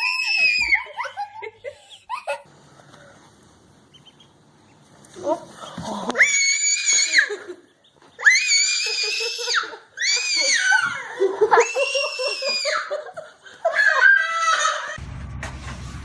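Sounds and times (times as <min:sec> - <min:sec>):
high-pitched screams: 0:00.0 - 0:00.9, 0:06.2 - 0:07.4, 0:08.2 - 0:12.9, 0:13.7 - 0:15.0.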